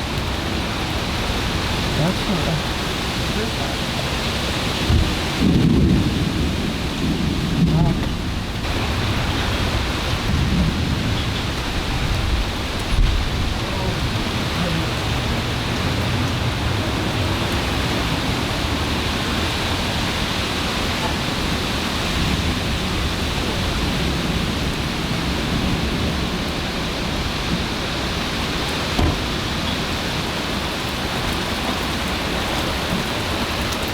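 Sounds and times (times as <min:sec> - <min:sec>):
low rumbling thunder: 0:00.0 - 0:33.6
rain falling: 0:00.0 - 0:33.9
loud thump: 0:29.0 - 0:29.3.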